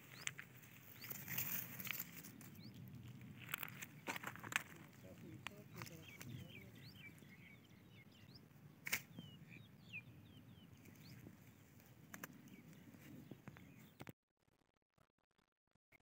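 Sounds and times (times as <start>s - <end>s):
high bird chirps: 5.5s - 11.6s
sharp click: 8.8s - 9.1s.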